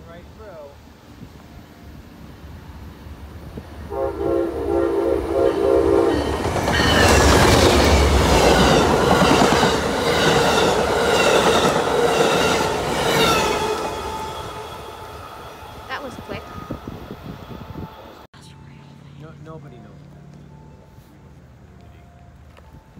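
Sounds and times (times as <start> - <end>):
train horn: 3.8 - 7.2
train wheels clattering on rails: 6.0 - 14.4.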